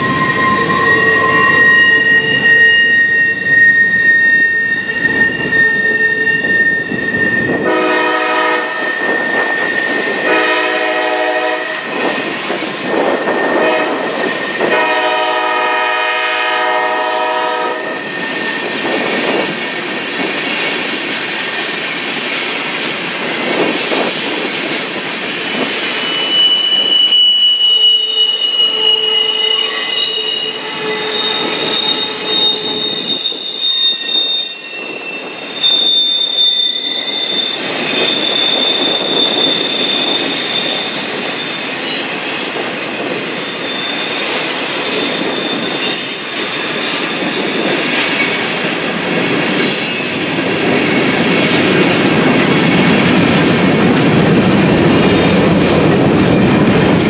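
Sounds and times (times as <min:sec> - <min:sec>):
steel wheels squealing: 0:00.0 - 0:10.6, 0:11.2 - 0:15.0, 0:17.8 - 0:19.8, 0:25.4 - 0:51.2, 0:54.0 - 0:57.0
freight train rumble: 0:00.0 - 0:57.0.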